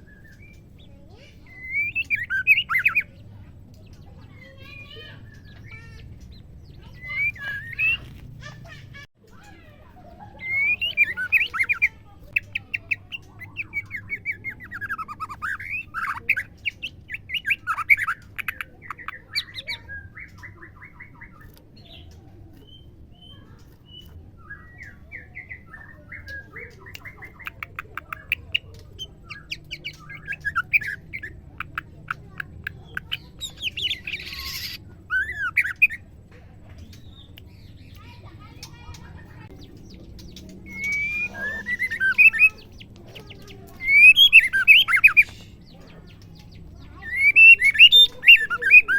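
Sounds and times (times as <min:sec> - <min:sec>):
bird whistled calls: 0:01.4 - 0:03.2, 0:06.8 - 0:08.1, 0:10.4 - 0:11.9, 0:33.1 - 0:36.0, 0:40.6 - 0:42.9, 0:43.6 - 0:45.4, 0:46.9 - 0:48.9
bird stuttering rattles: 0:37.8 - 0:48.9.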